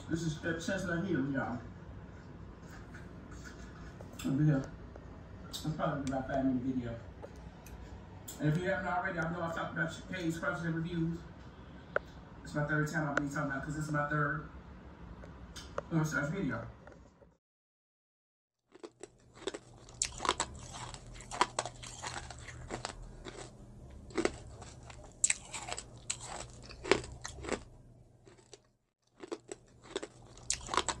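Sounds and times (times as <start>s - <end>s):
crunching and chewing crisp food: 18.6s - 31.0s
faint low hum: 18.8s - 31.0s.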